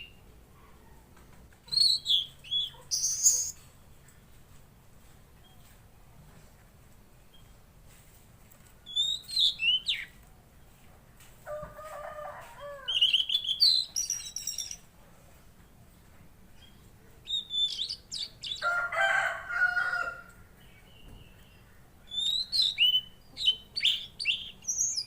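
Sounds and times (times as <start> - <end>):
lower-pitched bird calls: 1.7 - 3.6
songbird twittering: 1.7 - 3.6, 16.6 - 18.6, 20.9 - 25.0.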